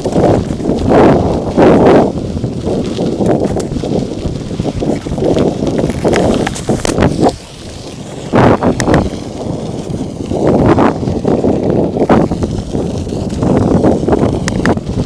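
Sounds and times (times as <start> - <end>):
bike knocks and rattles: 0.0 - 15.0
wind buffeting microphone: 0.0 - 15.0.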